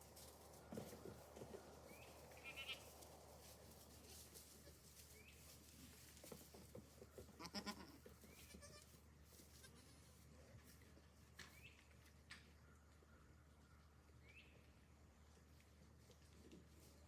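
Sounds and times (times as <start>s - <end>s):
goats bleating: 2.4s - 2.9s, 7.3s - 8.9s.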